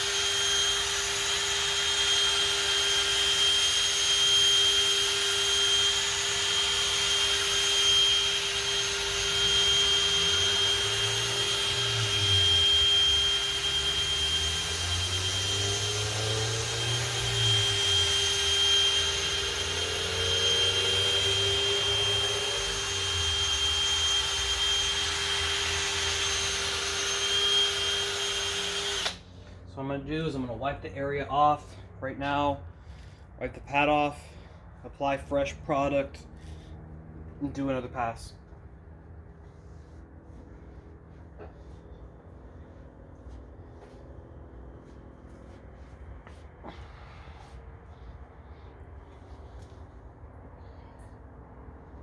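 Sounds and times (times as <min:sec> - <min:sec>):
electric drill whining: 0:00.0 - 0:29.3.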